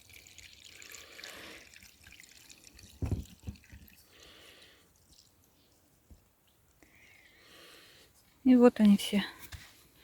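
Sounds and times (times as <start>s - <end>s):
water trickling and dripping: 0.0s - 6.9s.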